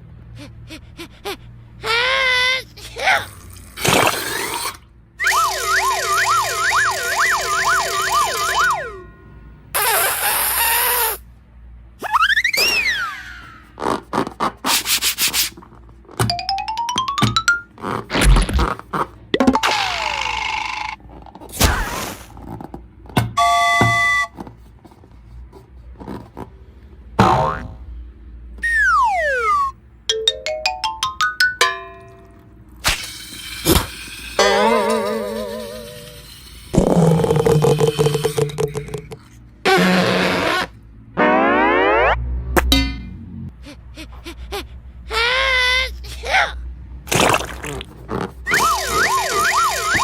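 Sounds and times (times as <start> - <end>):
wailing siren-like sound: 5.2 - 9.1, 28.6 - 29.7, 41.2 - 42.6, 48.5 - 50.0.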